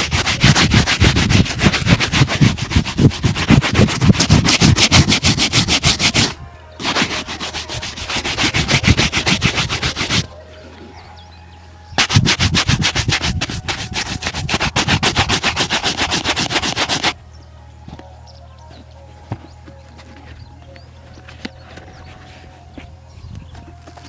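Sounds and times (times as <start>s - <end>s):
shoe being buffed: 0.0s - 10.3s, 12.0s - 17.2s.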